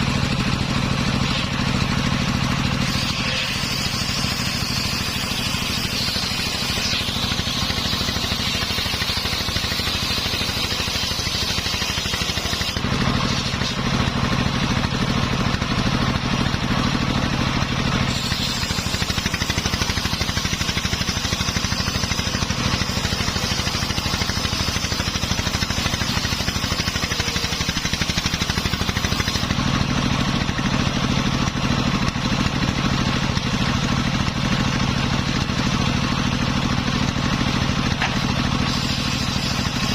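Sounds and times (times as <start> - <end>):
engine running: 0.0 - 39.9
saw blade cutting wood hissing: 0.8 - 14.1, 18.0 - 29.6, 36.1 - 39.9.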